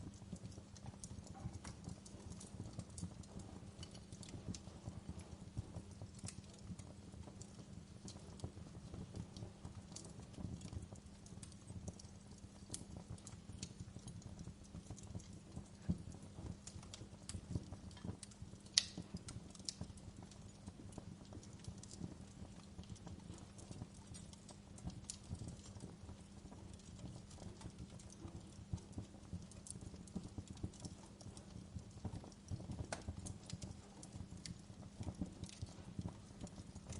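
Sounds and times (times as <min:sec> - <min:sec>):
wood fire crackling: 0:00.0 - 0:36.9.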